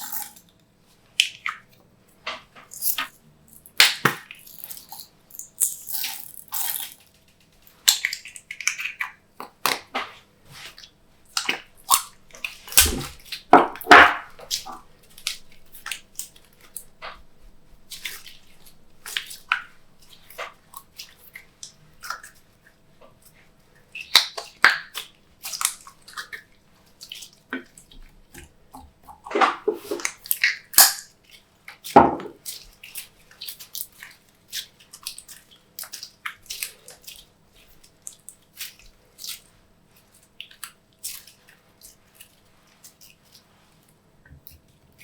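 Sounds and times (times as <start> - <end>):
slime squishing with sticky pops: 2.4 - 22.5.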